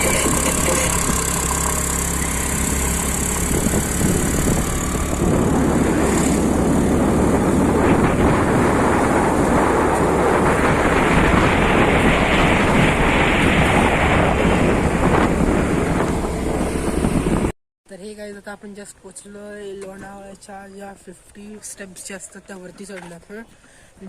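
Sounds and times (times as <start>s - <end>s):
wind on microphone: 0.0s - 17.5s
car engine: 0.0s - 17.6s
road noise: 0.0s - 24.0s.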